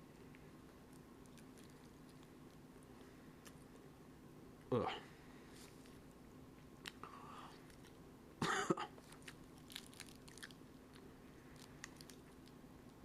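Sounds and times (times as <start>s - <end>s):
person chewing: 0.7s - 3.9s, 9.0s - 13.0s.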